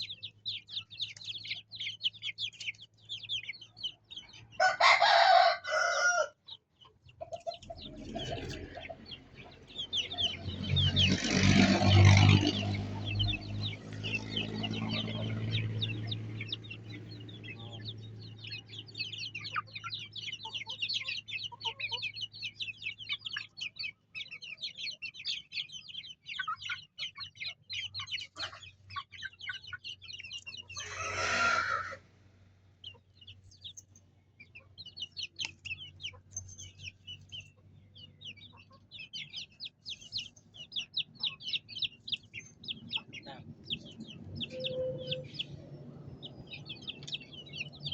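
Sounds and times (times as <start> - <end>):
chickens clucking: 0.0 - 47.9
chicks peeping: 0.0 - 47.9
chicken squawk: 4.5 - 6.6, 19.4 - 22.2, 26.3 - 32.1.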